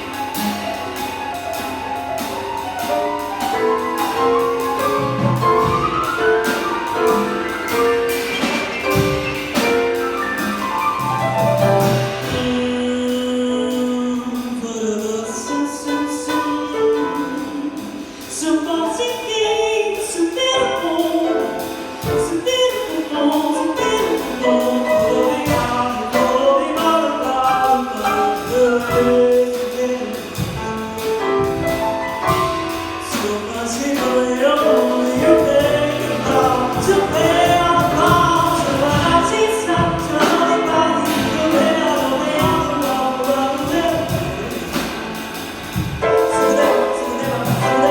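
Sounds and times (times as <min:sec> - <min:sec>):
instrumental accompaniment: 0:00.0 - 0:47.9
woman singing: 0:12.1 - 0:31.9, 0:32.5 - 0:47.9.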